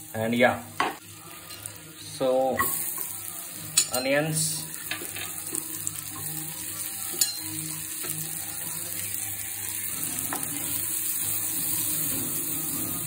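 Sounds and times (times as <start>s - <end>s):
onions sizzling in a frying pan: 0.0s - 13.0s.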